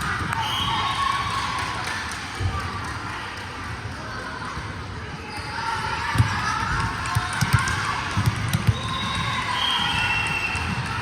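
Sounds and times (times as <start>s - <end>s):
volleyball thumping: 6.2s - 9.9s.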